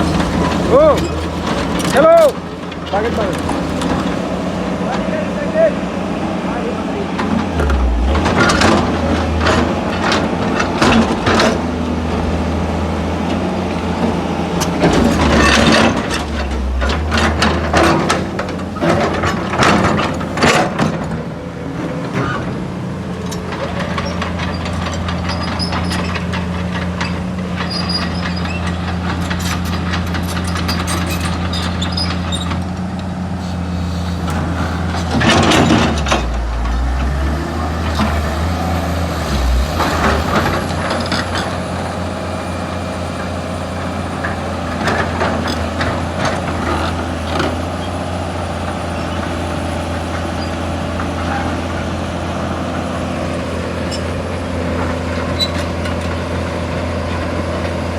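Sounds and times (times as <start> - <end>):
excavator diesel engine: 0.0 - 57.9
metal clanks: 7.2 - 12.5, 14.6 - 21.2.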